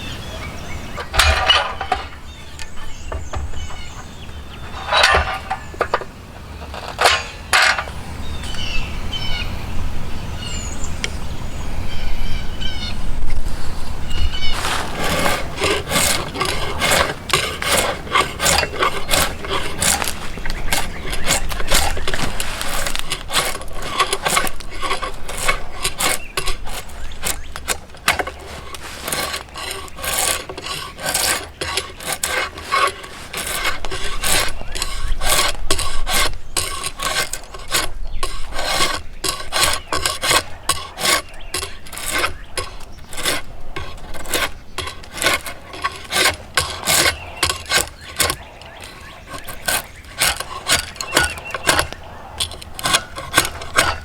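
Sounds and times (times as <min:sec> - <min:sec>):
hand rasp on wood: 0:13.4 - 0:54.0.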